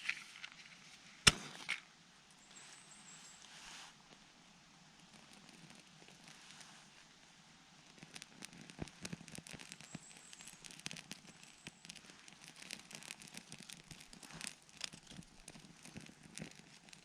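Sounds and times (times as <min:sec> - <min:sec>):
dry wood crackling: 0:05.0 - 0:07.1, 0:07.8 - 0:17.0.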